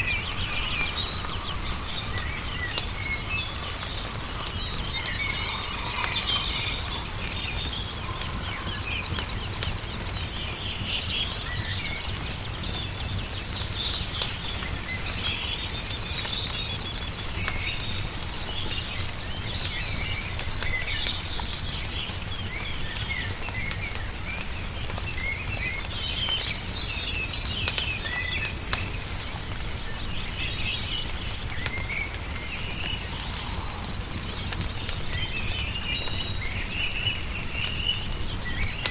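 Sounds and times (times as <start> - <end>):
steady low rumble: 0.0 - 11.5
small birds chirping: 0.0 - 38.9
wood fire crackling and popping: 0.0 - 38.9.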